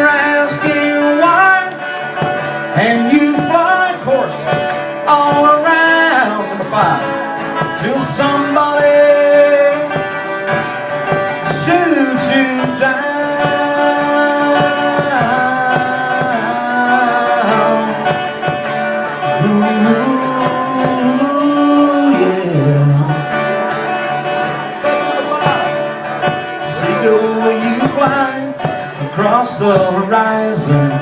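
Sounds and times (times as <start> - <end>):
acoustic guitar playing: 0.0 - 31.0
person singing wordless notes: 11.4 - 18.6, 19.2 - 24.2, 24.8 - 31.0.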